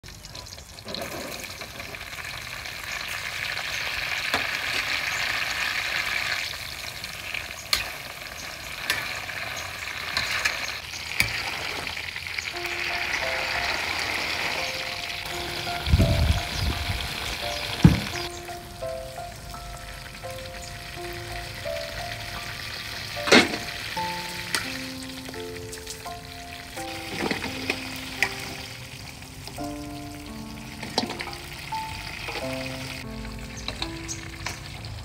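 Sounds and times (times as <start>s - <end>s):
frying in hot oil sizzling: 0.0s - 35.0s.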